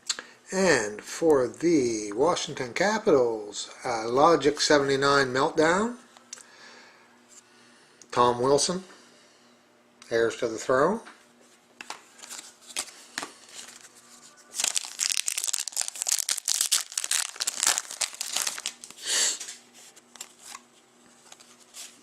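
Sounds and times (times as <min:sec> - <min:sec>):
foil wrapper crinkling and tearing: 0:14.5 - 0:19.6.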